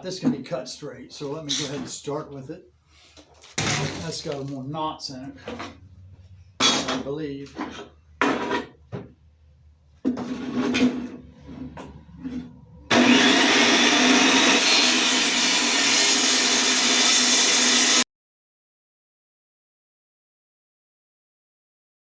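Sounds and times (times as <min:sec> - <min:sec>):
electric saw cutting wood: 0:12.3 - 0:18.1.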